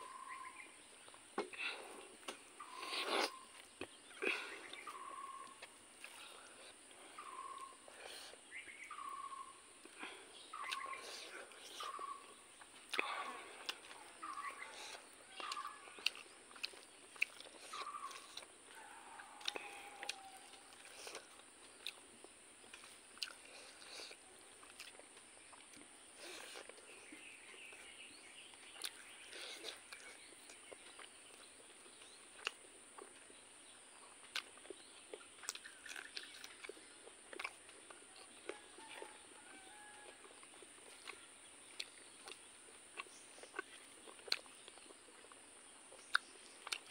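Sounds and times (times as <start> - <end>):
person chewing and lip smacks: 0.1 - 46.9.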